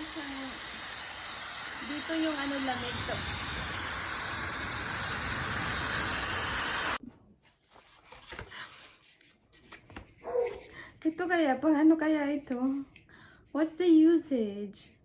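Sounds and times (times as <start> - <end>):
hair dryer blowing: 0.0 - 7.0.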